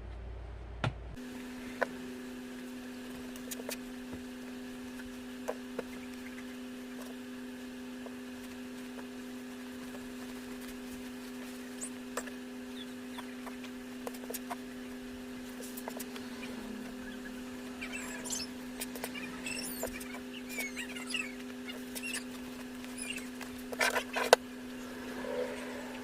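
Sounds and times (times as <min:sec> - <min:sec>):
steady hum: 0:00.0 - 0:26.0
high squeaky chirps: 0:12.7 - 0:13.4, 0:16.3 - 0:24.1.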